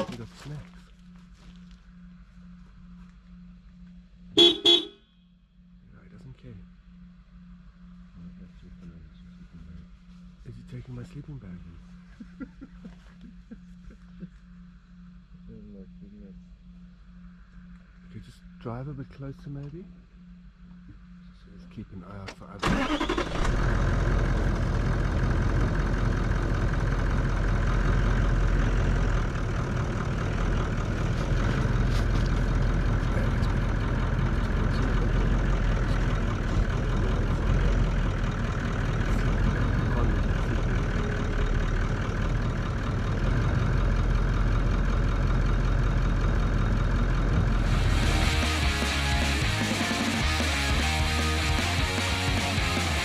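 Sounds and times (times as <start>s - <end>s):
vehicle engine humming: 0.0s - 53.0s
rock music with guitar: 47.6s - 53.0s.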